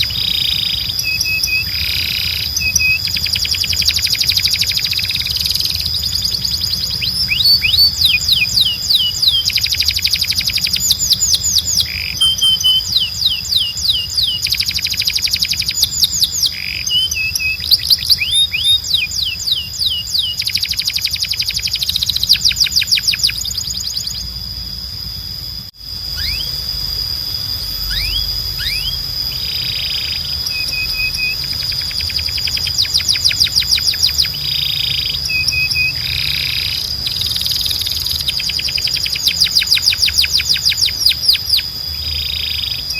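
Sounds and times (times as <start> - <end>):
canary singing trills: 0.0 - 42.9.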